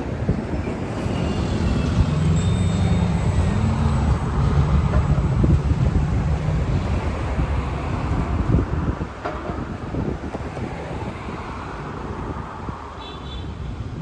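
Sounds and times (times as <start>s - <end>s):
road traffic noise: 0.0s - 14.0s
heavy vehicle engine passing by: 0.6s - 8.8s.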